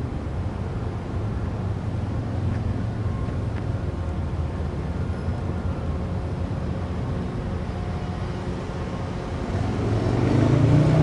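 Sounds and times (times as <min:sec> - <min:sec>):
train rumbling on track: 0:00.0 - 0:11.0.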